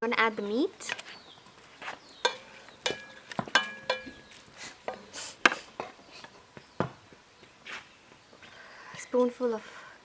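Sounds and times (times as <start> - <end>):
metal spoon clinking on pot: 2.2 - 4.3.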